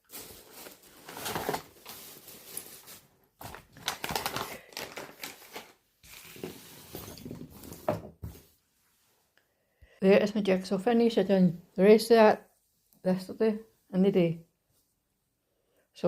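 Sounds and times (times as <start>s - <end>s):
rustling and crinkling handling noise: 0.0s - 9.3s.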